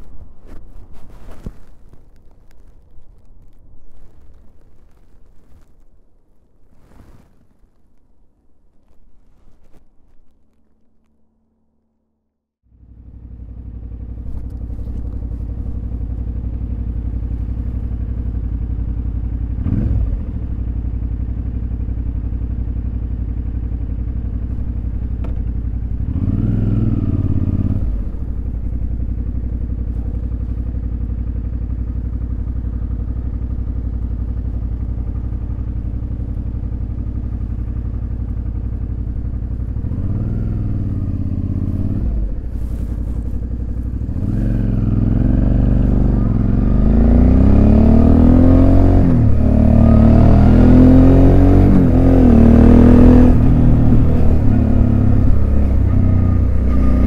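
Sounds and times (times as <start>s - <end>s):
motorcycle engine revving: 12.7s - 57.0s.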